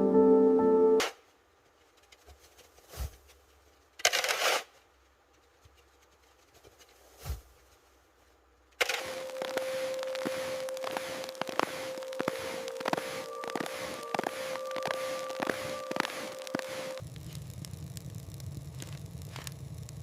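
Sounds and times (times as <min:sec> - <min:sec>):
soft music: 0:00.0 - 0:01.0, 0:09.0 - 0:17.0
short crunching scrape: 0:04.0 - 0:04.7.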